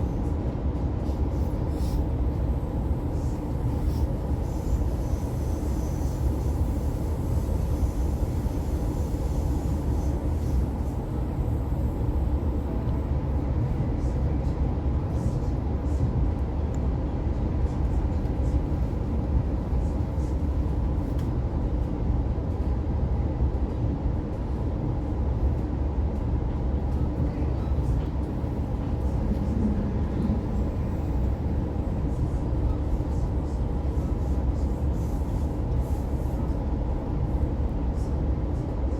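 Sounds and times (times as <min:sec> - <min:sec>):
constant train hum: 0:00.0 - 0:38.9
train wheels rumbling on rails: 0:23.5 - 0:38.9.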